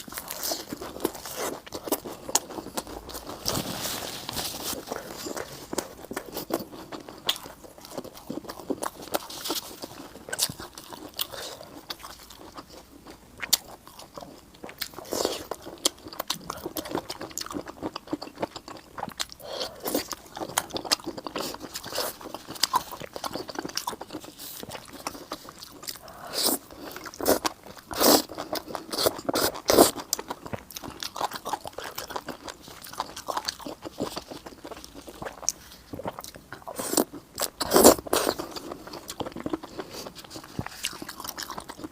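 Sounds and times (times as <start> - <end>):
person chewing crunchy food: 0.0 - 41.9.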